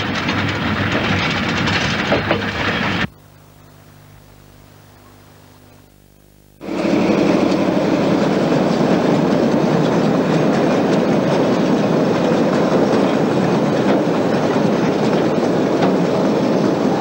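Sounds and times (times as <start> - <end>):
train wheels rumbling on rails: 0.0 - 3.1, 6.6 - 17.0.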